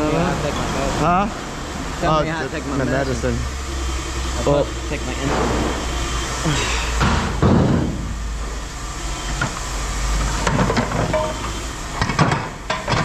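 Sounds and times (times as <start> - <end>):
low machinery rumble: 0.0 - 13.0
metal knocks and clinks: 10.4 - 13.0.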